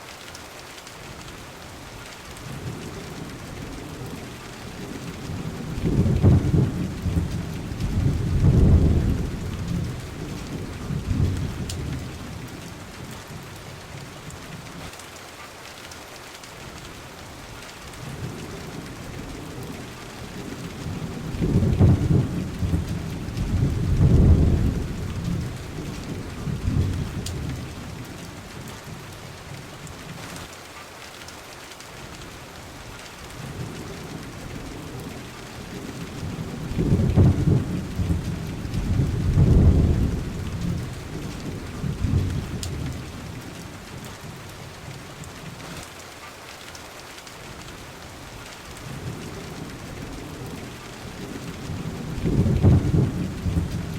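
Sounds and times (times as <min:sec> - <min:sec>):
rain hissing: 0:00.0 - 0:53.9
thunder rolling: 0:05.0 - 0:12.4, 0:19.2 - 0:28.0, 0:35.7 - 0:43.4, 0:51.2 - 0:53.9.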